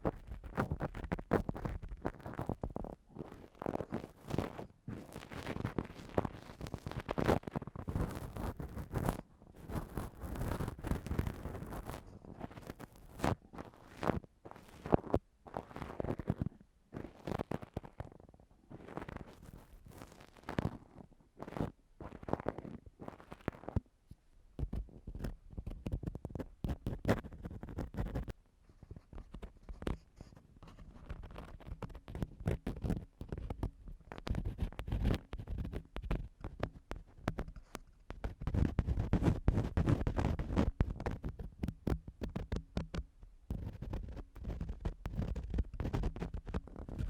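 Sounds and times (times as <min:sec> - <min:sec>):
ear-cleaning tool scraping microphone: 0:00.0 - 0:23.8, 0:24.6 - 0:47.0.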